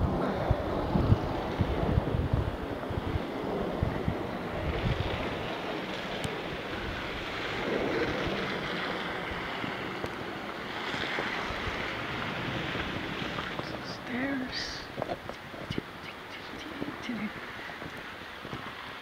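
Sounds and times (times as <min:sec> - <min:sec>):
wind rushing across microphone: 0:00.0 - 0:19.0.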